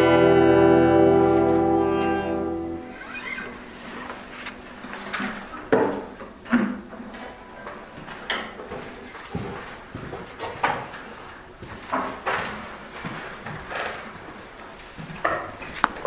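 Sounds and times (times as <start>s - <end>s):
objects knocking and clunking: 4.2s - 11.0s.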